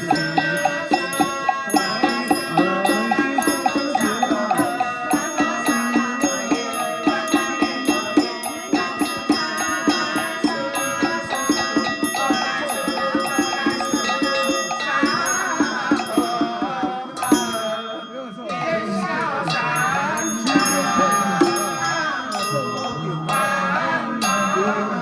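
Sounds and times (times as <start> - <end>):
held notes: 0.0 - 25.0
percussion beat: 0.0 - 25.0
ringing bell-like tones: 0.0 - 25.0.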